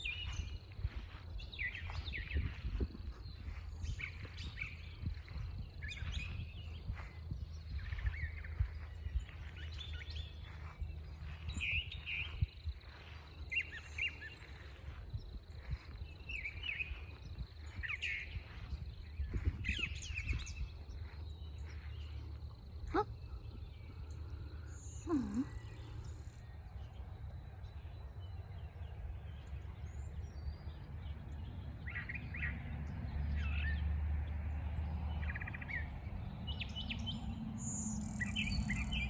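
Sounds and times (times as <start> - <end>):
birds chirping and calling: 0.0 - 26.4, 36.6 - 39.0
steady low rumble: 0.0 - 31.3.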